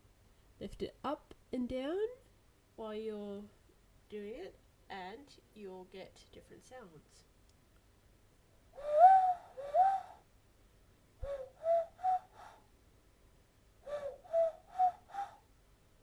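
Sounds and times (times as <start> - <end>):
hand whistle owl-like hoots: 8.7 - 10.3, 11.2 - 12.7, 13.8 - 15.5.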